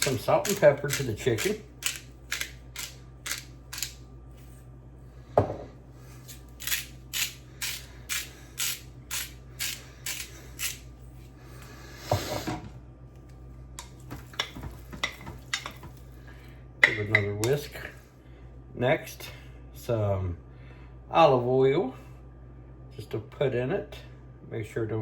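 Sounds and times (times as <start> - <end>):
seasoning grinder strokes: 6.2 - 10.9.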